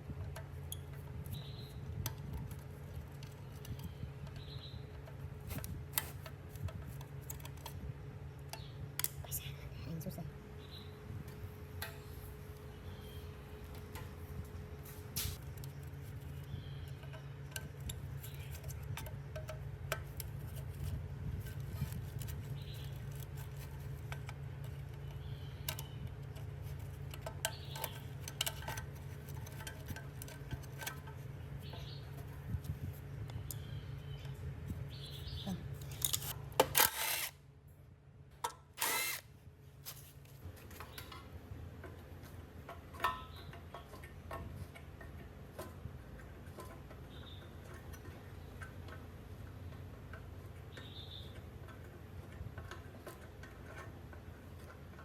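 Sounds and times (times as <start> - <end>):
power tool humming: 38.8 - 39.2.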